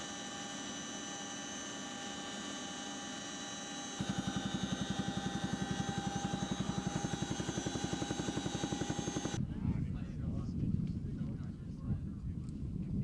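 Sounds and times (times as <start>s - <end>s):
helicopter turbine whine: 0.0s - 10.1s
low rotor thump: 3.8s - 9.4s.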